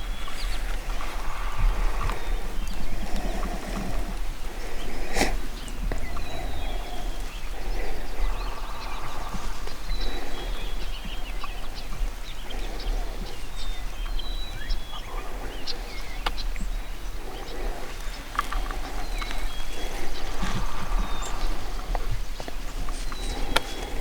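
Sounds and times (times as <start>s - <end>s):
songbirds chirping: 0.0s - 24.0s
steady low rumble: 0.0s - 24.0s.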